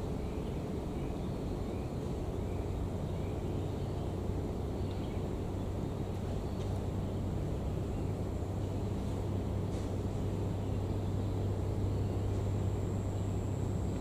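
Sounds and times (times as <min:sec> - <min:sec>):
low hum: 0:00.0 - 0:14.0
low rumbling noise: 0:00.0 - 0:14.0.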